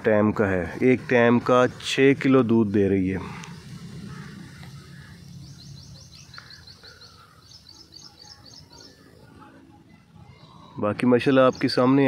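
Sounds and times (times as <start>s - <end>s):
faint rural background noise: 0.0s - 12.0s
small bird chirping: 3.4s - 9.3s.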